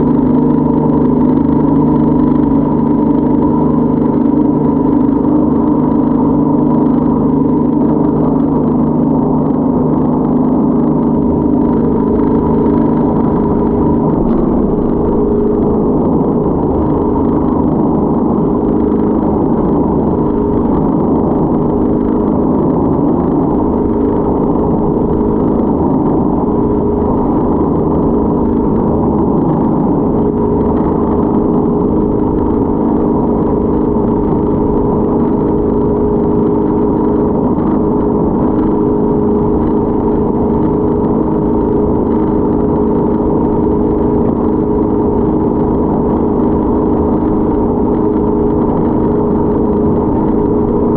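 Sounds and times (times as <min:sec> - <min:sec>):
motorboat engine droning: 0:00.0 - 0:50.9.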